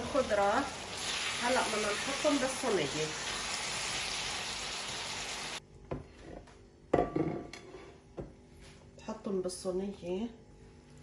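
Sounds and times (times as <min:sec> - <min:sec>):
food sizzling in a frying pan: 0:00.0 - 0:05.6
cookware knocking and clinking: 0:07.0 - 0:07.5.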